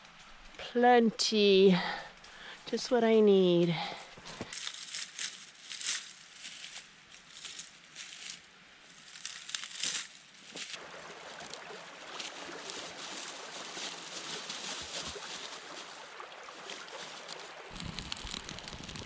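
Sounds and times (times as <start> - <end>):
fire crackling: 17.7 - 19.0.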